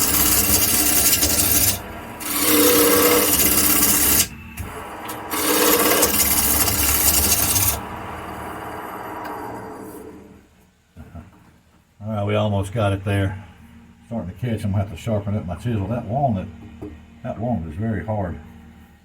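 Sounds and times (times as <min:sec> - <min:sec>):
chisel scraping spinning wood: 0:00.0 - 0:10.3
wood lathe running: 0:00.0 - 0:10.4.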